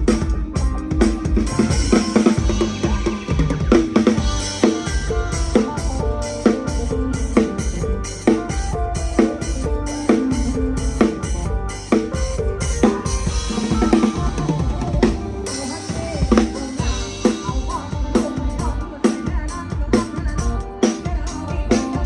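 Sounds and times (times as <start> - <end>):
live band playing: 0.0 - 22.0.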